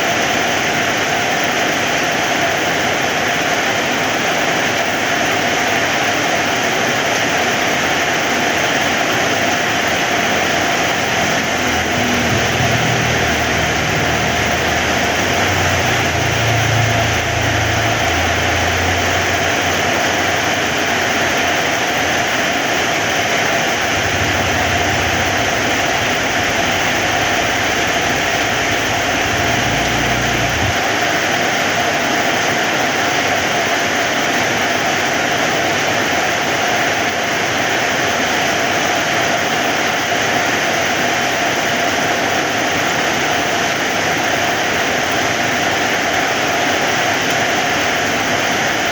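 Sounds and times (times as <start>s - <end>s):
heavy rain falling: 0.1s - 48.9s
low rumble: 10.6s - 21.8s, 23.1s - 31.0s.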